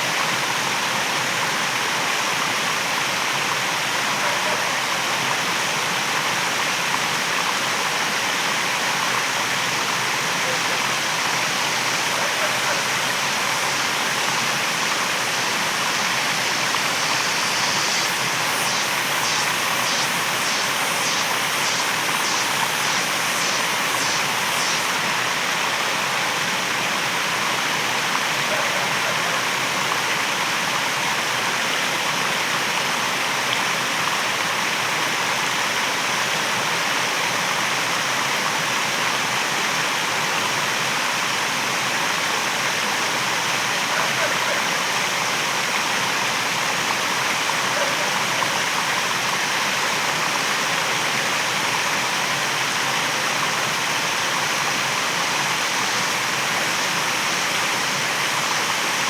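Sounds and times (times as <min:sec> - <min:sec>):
waterfall rushing: 0:08.4 - 0:30.6
faint high pulsing sound: 0:11.4 - 0:25.0.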